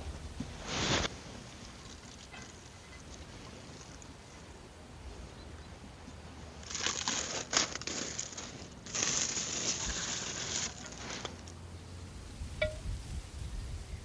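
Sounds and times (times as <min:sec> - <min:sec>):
crinkling and rustling: 0:06.6 - 0:11.6.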